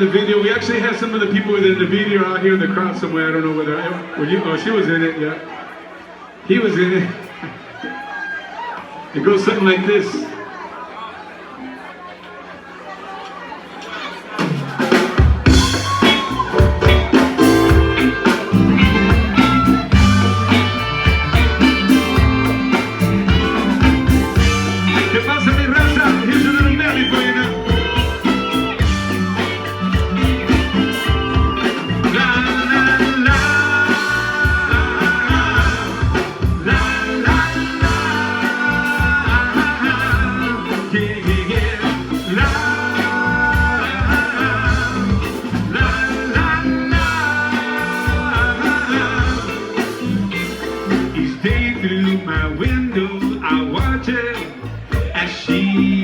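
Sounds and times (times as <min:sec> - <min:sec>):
live band playing soul music: 0:00.0 - 0:04.2, 0:14.0 - 0:56.0.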